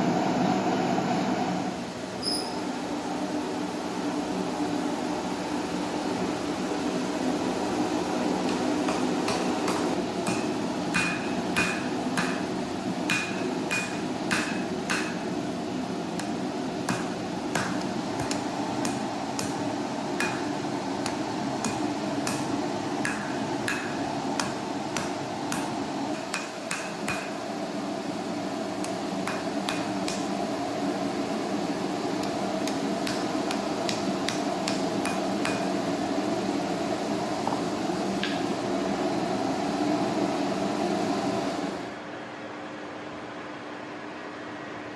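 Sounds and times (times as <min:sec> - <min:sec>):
steady machine hum: 0:00.0 - 0:44.9
hammer tapping on steel: 0:08.5 - 0:15.3, 0:16.2 - 0:27.4, 0:28.8 - 0:30.4, 0:32.2 - 0:35.8.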